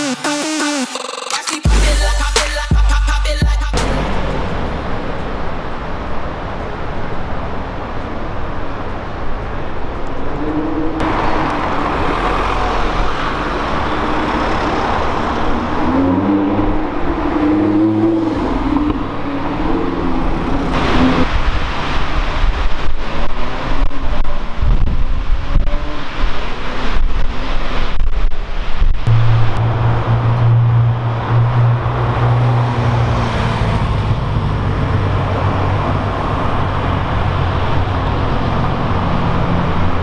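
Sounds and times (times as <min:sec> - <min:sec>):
traffic noise: 0:00.0 - 0:40.0
sports car engine: 0:03.2 - 0:08.2, 0:08.8 - 0:22.0, 0:29.1 - 0:40.0.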